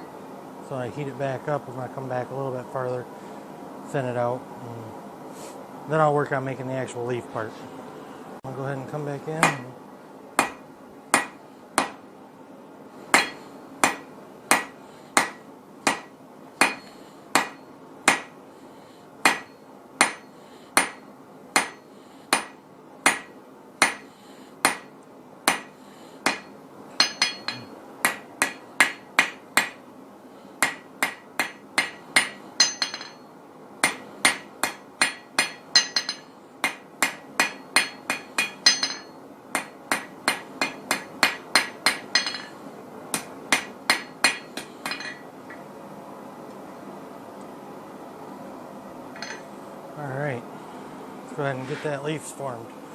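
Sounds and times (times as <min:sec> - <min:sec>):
hammer striking steel on anvil: 0:09.4 - 0:09.7, 0:10.4 - 0:12.0, 0:13.1 - 0:18.4, 0:19.2 - 0:24.9, 0:25.5 - 0:29.8, 0:30.6 - 0:45.6, 0:49.2 - 0:49.4.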